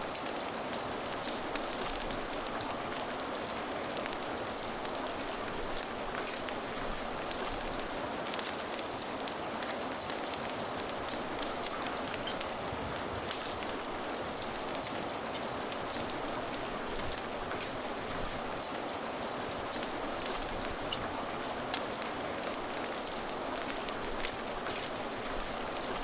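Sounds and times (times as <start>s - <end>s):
crackling fire pops: 0.0s - 26.0s
steady rain: 0.0s - 26.0s.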